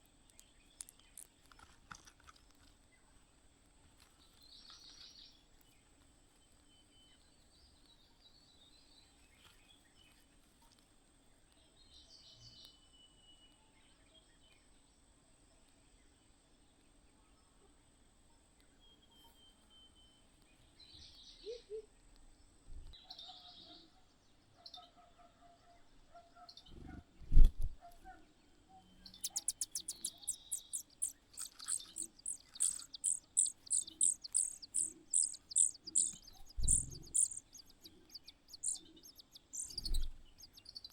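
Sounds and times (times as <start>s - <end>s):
faint bird chirps: 18.6s - 22.1s, 22.9s - 40.9s
nestlings begging chirps: 28.9s - 40.9s.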